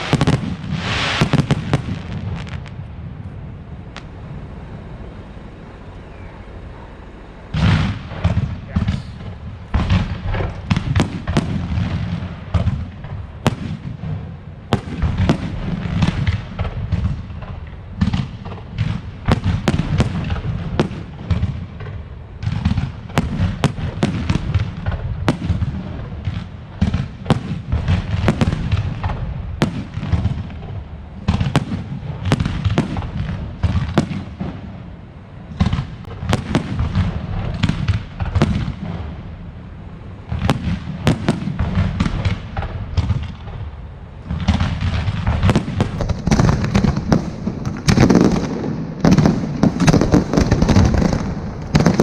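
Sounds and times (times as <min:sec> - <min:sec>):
fireworks cracking and booming: 0:00.0 - 0:05.0, 0:07.5 - 0:52.0.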